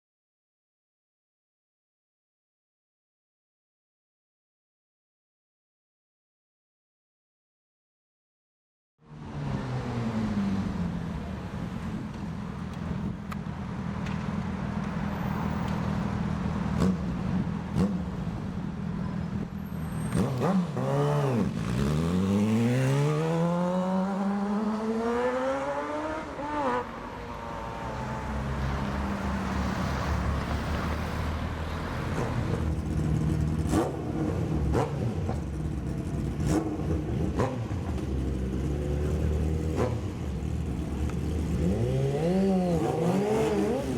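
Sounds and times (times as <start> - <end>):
street traffic: 9.0 - 43.9
motorcycle engine revving: 16.6 - 18.4, 19.8 - 26.9, 31.9 - 43.9.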